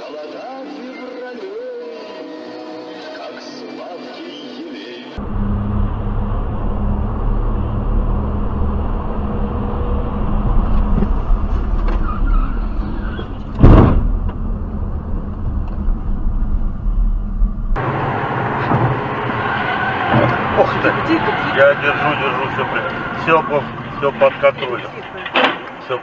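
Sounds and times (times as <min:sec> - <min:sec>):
car engine and road noise: 0:05.2 - 0:26.0
loud thump: 0:13.5 - 0:14.5, 0:17.8 - 0:20.6.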